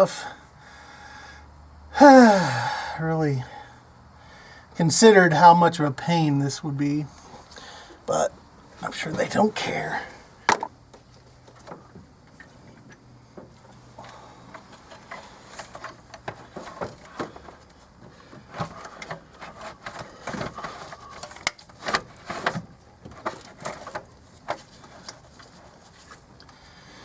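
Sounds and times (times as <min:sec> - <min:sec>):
plastic part clicking and knocking: 0:10.5 - 0:11.0.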